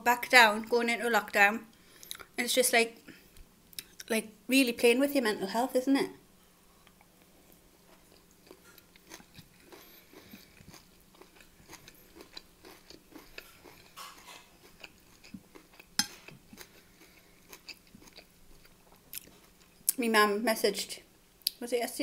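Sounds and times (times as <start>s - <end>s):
chewing with wet mouth clicks: 8.1s - 20.0s.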